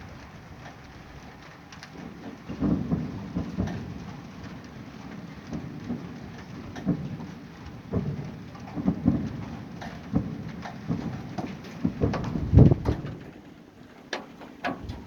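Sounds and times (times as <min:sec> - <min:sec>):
distant fireworks booming: 0:02.0 - 0:13.4.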